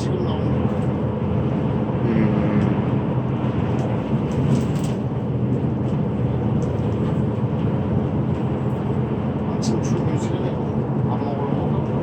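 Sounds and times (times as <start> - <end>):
bus engine and tyre drone: 0.0 - 12.0.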